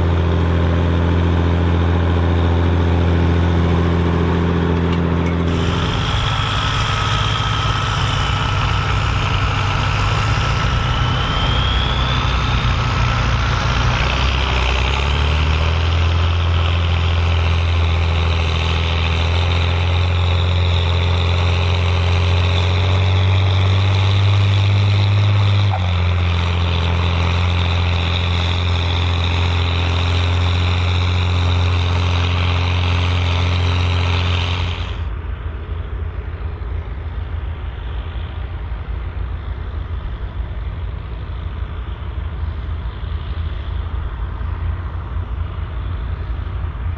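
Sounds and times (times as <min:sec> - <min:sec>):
tractor diesel engine under load: 0:00.0 - 0:46.9
thin high whine: 0:04.5 - 0:15.0.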